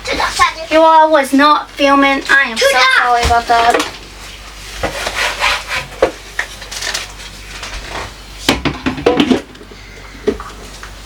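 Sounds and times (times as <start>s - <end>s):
dishes clinking and knocking: 8.5s - 9.6s.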